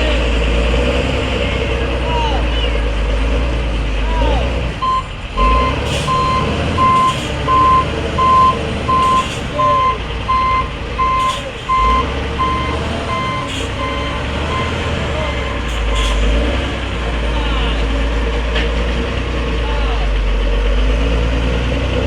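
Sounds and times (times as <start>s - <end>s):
heavy truck engine rumble: 0.0s - 22.0s
truck reversing alarm beeping: 4.8s - 18.2s.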